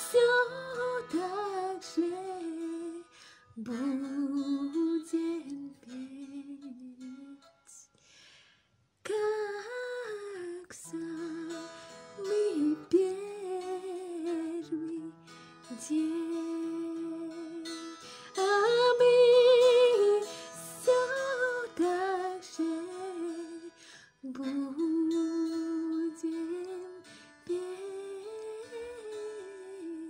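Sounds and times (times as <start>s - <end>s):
soft instrumental accompaniment: 0.0s - 8.0s.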